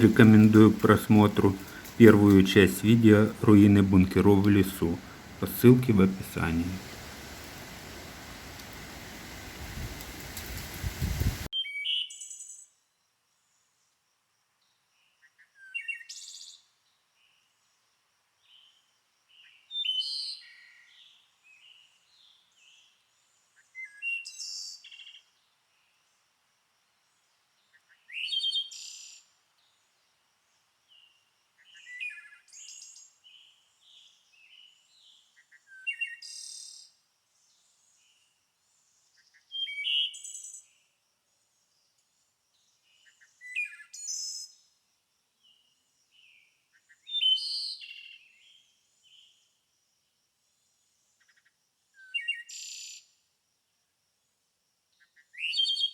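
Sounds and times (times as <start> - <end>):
steady rush of noise: 0.0 - 11.5.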